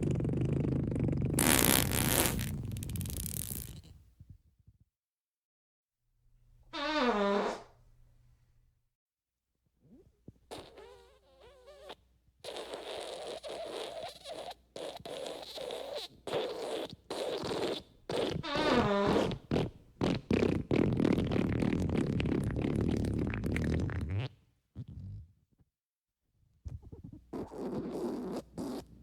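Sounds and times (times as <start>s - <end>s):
fart sound effects: 0.0s - 3.9s, 6.8s - 7.7s, 10.5s - 25.2s.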